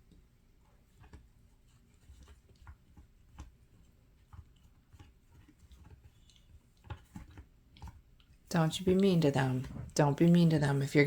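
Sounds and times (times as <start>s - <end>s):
puppy gnawing on chew: 0.8s - 8.5s.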